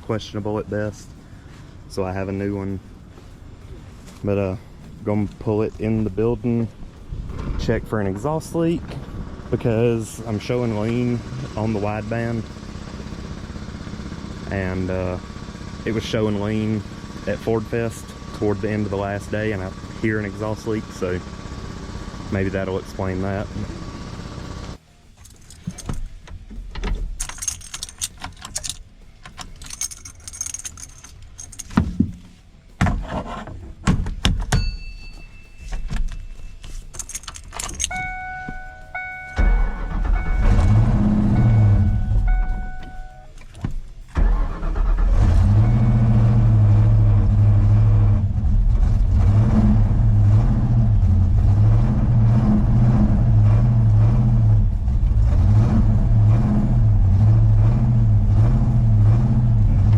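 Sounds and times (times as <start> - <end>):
car engine starting and revving: 0.6 - 24.8, 37.6 - 59.9
keys jangling: 25.2 - 26.2, 26.8 - 31.9, 34.4 - 39.4
short repeating chime: 34.6 - 36.7, 37.9 - 43.4.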